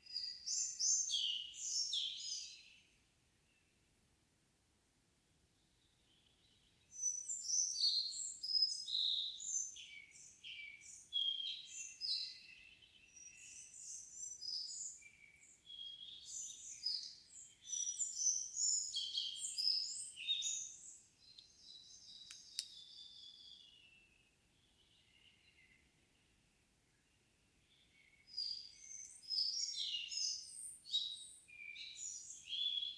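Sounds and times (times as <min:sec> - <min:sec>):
songbird singing: 0:00.0 - 0:03.6, 0:05.6 - 0:32.9
faint clicks: 0:22.2 - 0:22.8.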